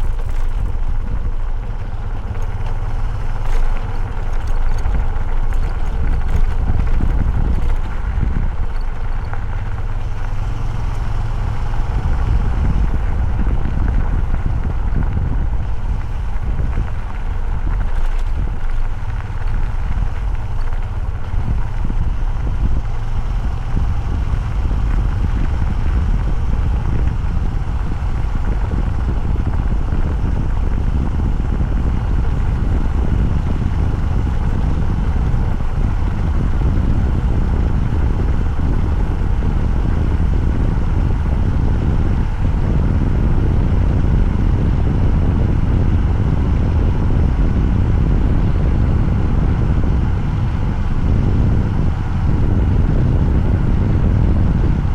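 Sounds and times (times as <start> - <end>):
motorcycle engine rumbling: 0.0 - 54.9.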